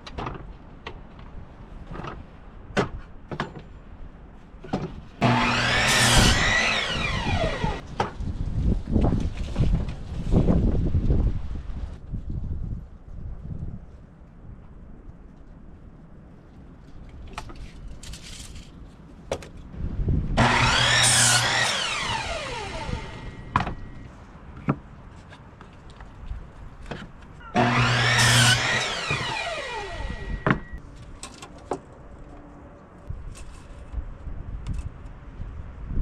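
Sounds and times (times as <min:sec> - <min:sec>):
electric saw cutting wood: 0:05.2 - 0:07.8, 0:20.4 - 0:24.0, 0:27.6 - 0:30.8.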